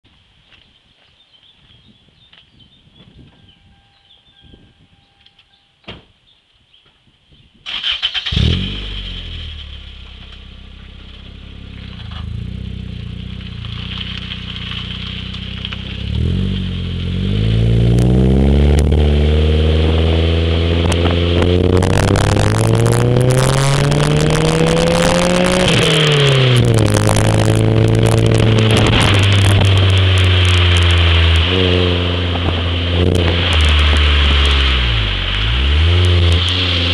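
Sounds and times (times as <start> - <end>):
car engine starting and revving: 7.7 - 36.9.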